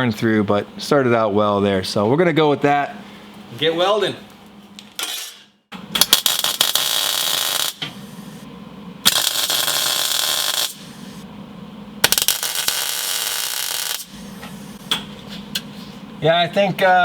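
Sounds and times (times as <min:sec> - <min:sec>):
arc welding bursts: 0:06.0 - 0:11.2, 0:12.0 - 0:14.8.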